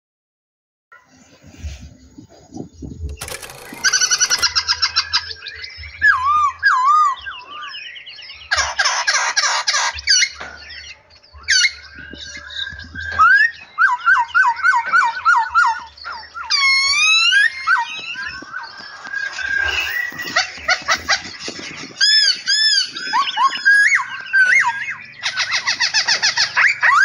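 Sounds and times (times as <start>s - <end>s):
songbirds singing and calling: 1.0s - 27.0s.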